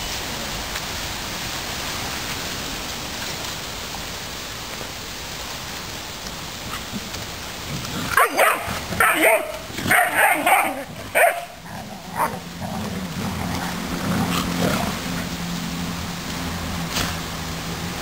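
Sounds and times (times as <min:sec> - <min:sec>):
dog barking: 0:08.2 - 0:12.4.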